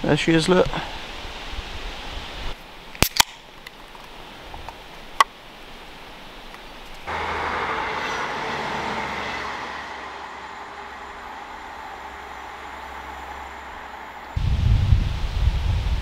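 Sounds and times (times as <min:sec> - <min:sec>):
train rushing rumble: 0:07.1 - 0:14.8.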